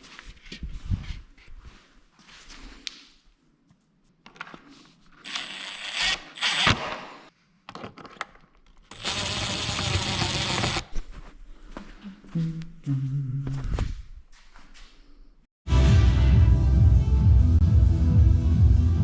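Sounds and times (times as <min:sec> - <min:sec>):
music: 0:15.7 - 0:19.0.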